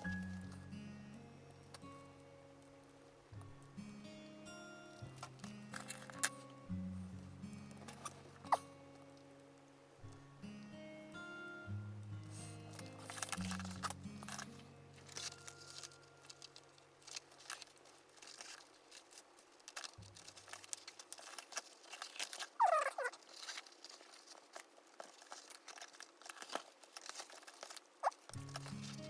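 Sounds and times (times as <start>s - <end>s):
quiet background music: 0.0s - 29.0s
leather handling ticks and taps: 23.2s - 29.0s.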